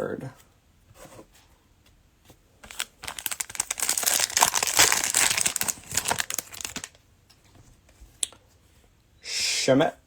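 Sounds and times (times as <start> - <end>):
cellophane wrapper crackling: 2.6 - 7.0.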